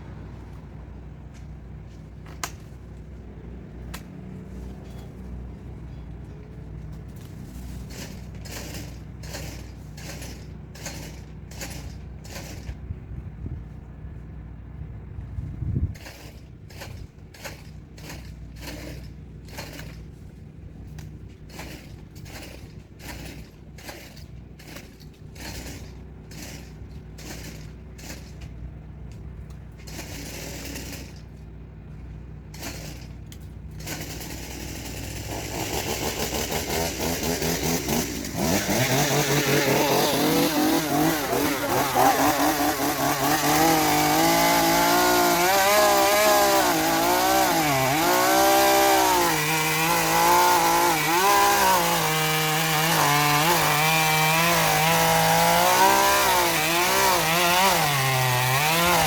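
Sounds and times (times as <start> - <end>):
chainsaw revving: 7.6 - 12.7, 16.0 - 20.0, 21.5 - 28.4, 29.8 - 31.3, 32.5 - 59.0.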